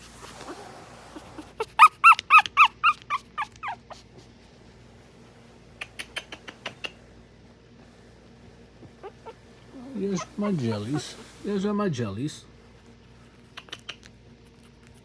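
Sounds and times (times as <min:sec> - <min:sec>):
puppy whimpering: 0:00.2 - 0:04.1, 0:09.0 - 0:11.6.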